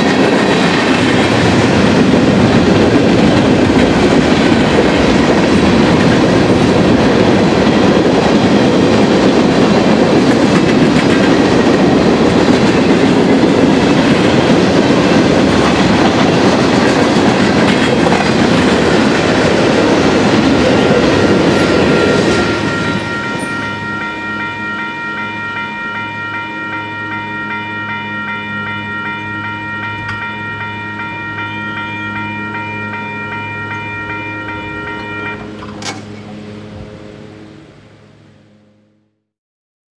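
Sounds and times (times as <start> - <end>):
freight cars clacking on rails: 0.0 - 36.4
crossing signal bell ringing: 18.3 - 36.7.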